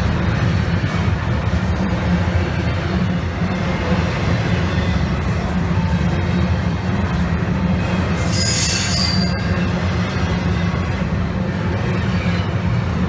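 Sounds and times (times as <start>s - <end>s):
train rolling past: 0.0s - 13.0s
high-pitched wheel squeal: 7.8s - 10.8s.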